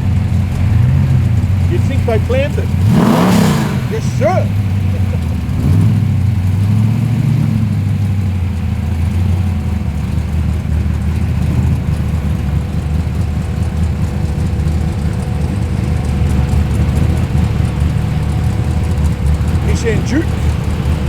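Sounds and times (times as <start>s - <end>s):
car engine rumbling: 0.0s - 21.0s.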